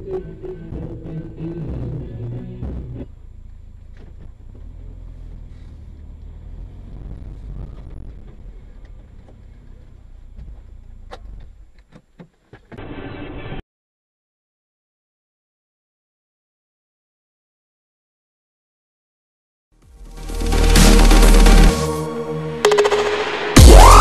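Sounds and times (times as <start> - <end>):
music: 0.0 - 3.2, 19.8 - 24.0
car road rumble: 0.0 - 12.8.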